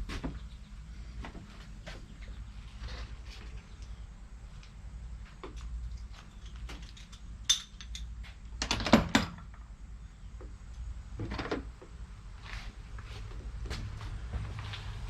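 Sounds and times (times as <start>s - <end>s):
metal tools clinking: 6.2s - 8.1s.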